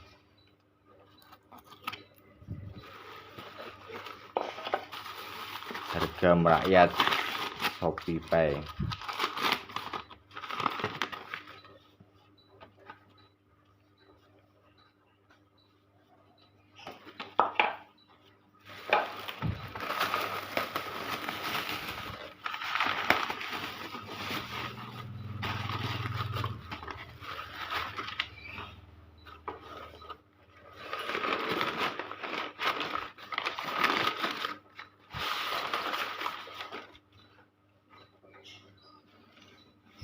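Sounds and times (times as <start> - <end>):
plastic rustling and scraping: 1.0 - 11.9, 18.6 - 37.1.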